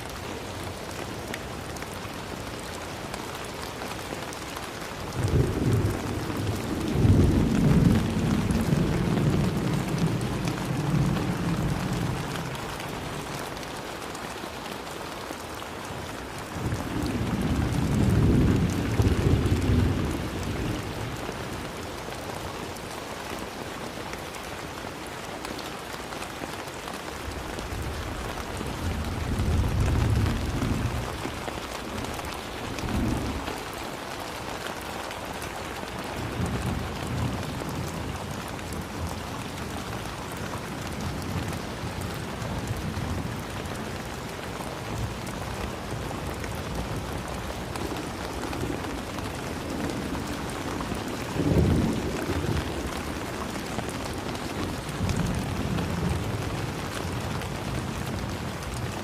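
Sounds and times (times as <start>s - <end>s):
steady rain falling: 0.0s - 59.0s
low rumbles of thunder: 5.2s - 13.3s, 16.6s - 21.4s, 27.7s - 33.8s, 48.5s - 58.9s.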